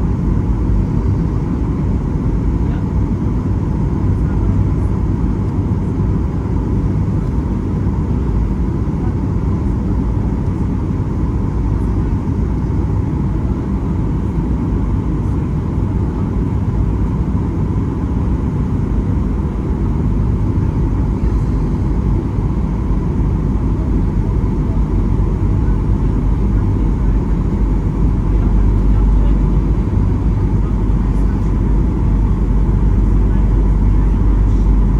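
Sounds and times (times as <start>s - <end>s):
airplane cabin engine rumble: 0.0s - 34.9s
thin steady whine: 18.2s - 34.9s.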